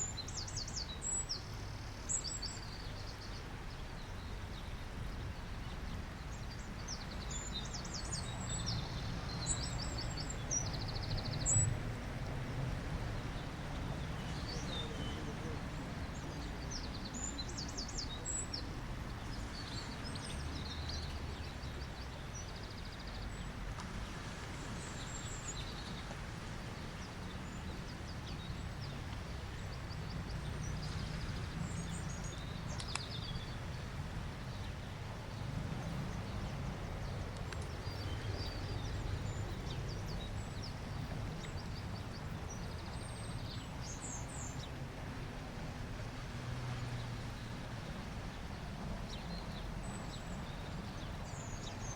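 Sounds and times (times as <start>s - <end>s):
birds chirping: 26.9s - 44.8s.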